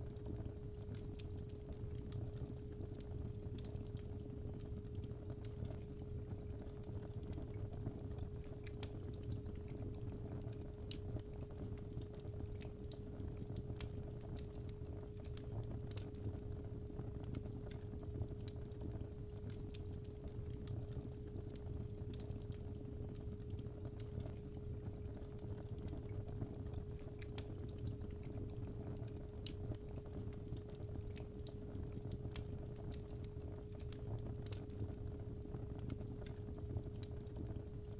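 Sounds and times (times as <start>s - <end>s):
fire crackling and popping: 0.1s - 37.9s.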